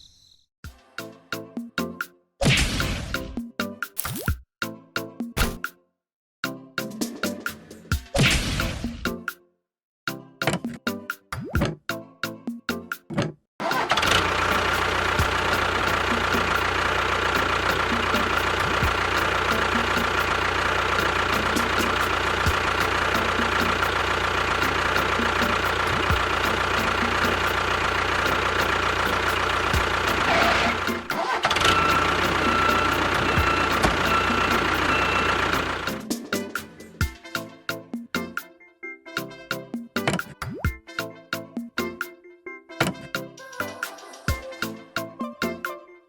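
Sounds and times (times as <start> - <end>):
small motor whining: 13.7 - 27.4, 28.3 - 36.0.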